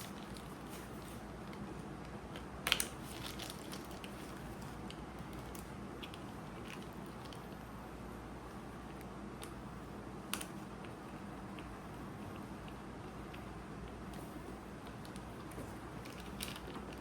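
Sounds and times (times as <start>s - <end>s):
small clicks and crunches: 0.0s - 7.6s, 12.4s - 17.0s
low background hum: 0.0s - 17.0s.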